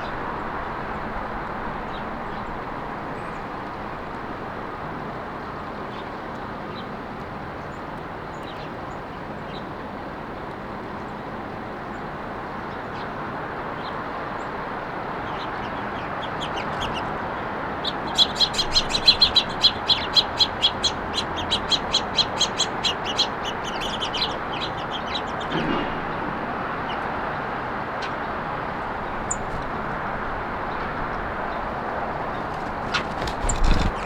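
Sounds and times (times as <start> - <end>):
road traffic hum: 8.9 - 34.0.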